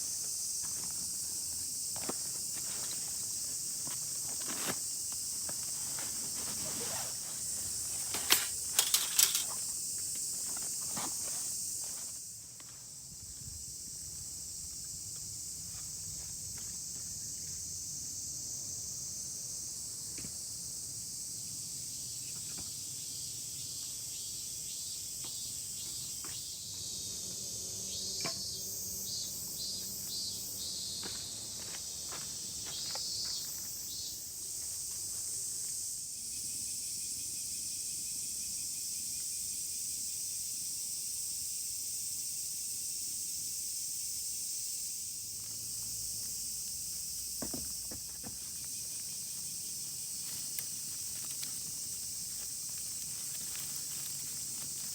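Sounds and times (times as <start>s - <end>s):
high-pitched insect chorus: 0.0s - 54.9s.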